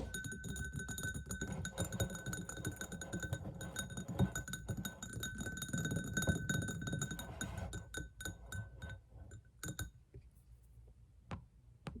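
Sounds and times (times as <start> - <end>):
fingernails tapping glass bottles: 0.0 - 9.0.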